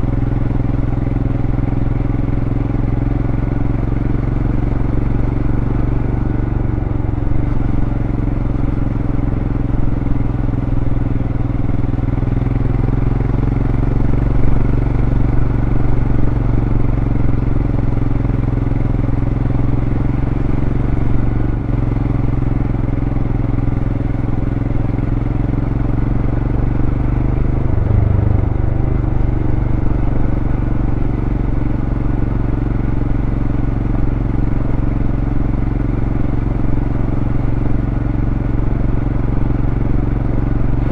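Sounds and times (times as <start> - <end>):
motorcycle engine cruising: 24.5 - 40.9.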